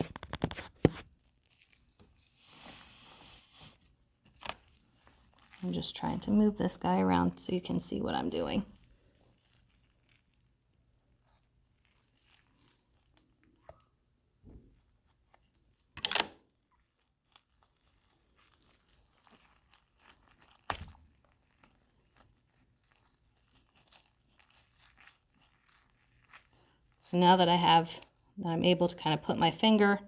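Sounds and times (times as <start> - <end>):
faint crinkles and small clicks: 0.0 - 2.9, 3.5 - 6.8, 8.3 - 27.1
short tearing rustle: 8.8 - 10.5, 14.6 - 27.0.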